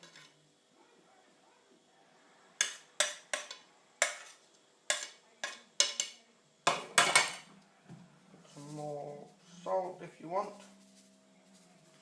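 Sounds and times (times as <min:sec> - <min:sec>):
utensil clinking against a dish: 0:02.6 - 0:07.4.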